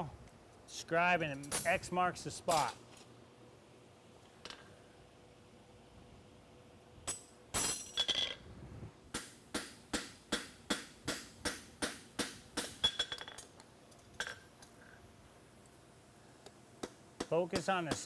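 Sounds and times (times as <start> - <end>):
hammer striking steel on anvil: 9.1 - 13.4.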